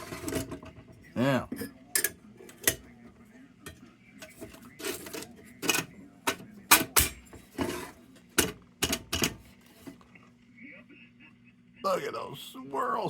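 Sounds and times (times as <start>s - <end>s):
metal and glass clinking: 1.5s - 2.9s.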